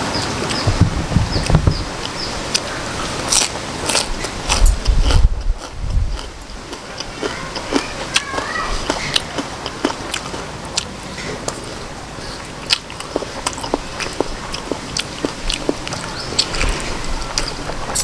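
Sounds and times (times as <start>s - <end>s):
person chewing: 2.0s - 18.0s.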